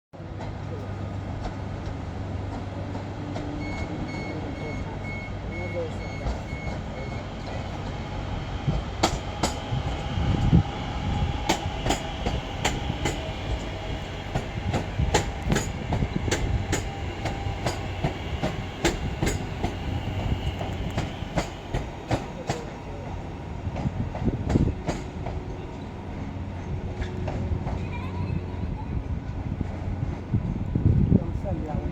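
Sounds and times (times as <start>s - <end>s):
low train rumble: 0.2s - 31.9s
faint high wheel squeal: 3.6s - 7.9s
train wheel clicks over rail joints: 14.4s - 19.8s.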